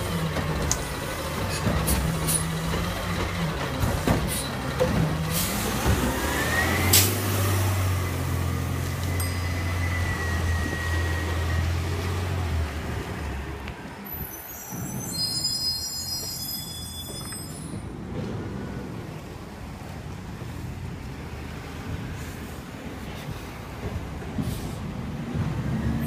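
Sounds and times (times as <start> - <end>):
high-pitched squeal: 9.0 - 12.4, 14.0 - 17.9.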